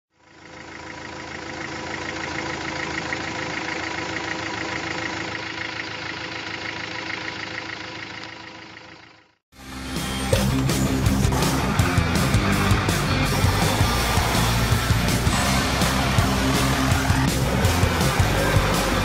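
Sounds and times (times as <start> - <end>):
diesel engine idling with clatter: 0.1 - 9.4, 10.4 - 19.0.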